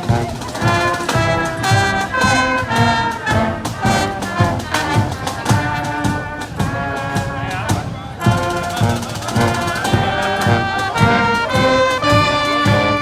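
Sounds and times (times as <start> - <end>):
brass band playing a march: 0.0 - 13.0.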